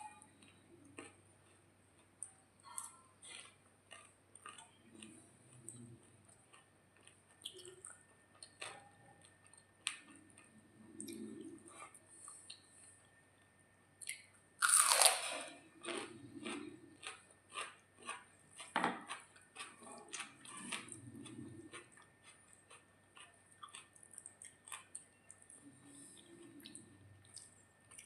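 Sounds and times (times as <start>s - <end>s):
person crunching food: 14.0s - 25.2s.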